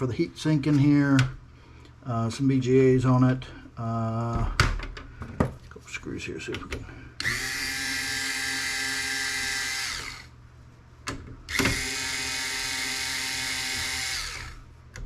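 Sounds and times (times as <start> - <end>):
electric screwdriver running: 7.2 - 10.3, 11.5 - 14.6.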